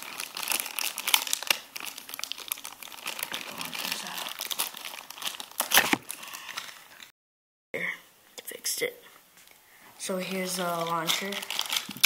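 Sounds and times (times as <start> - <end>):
plastic packaging crinkling: 0.0 - 7.1, 10.4 - 12.0.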